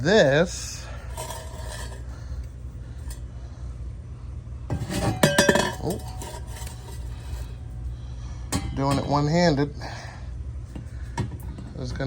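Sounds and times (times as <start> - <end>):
low hum: 0.0 - 12.0
metal pipes clanking: 1.0 - 2.1, 4.7 - 7.6, 8.5 - 9.6.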